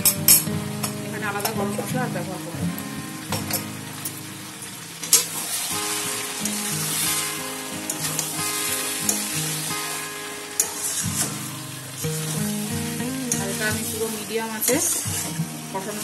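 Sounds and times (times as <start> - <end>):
meat and potatoes sizzling: 0.0 - 16.0
metal spatula scraping a pan: 5.1 - 10.0, 10.6 - 15.4.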